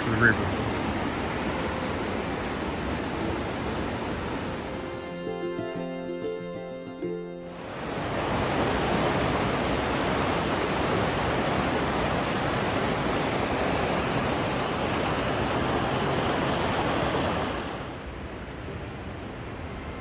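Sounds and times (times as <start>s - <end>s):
whitewater rushing: 0.0s - 5.3s, 7.5s - 18.1s.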